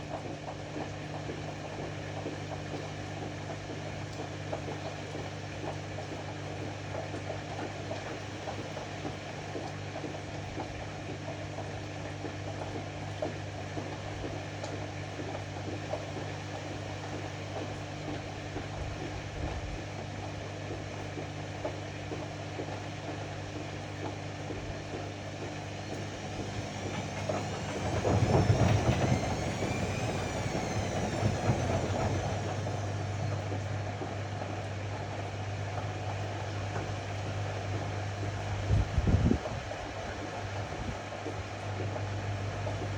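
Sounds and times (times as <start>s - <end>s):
washer-dryer motor hum: 0.0s - 42.9s
motor whine: 24.5s - 35.1s
drum rumbling: 25.9s - 33.8s.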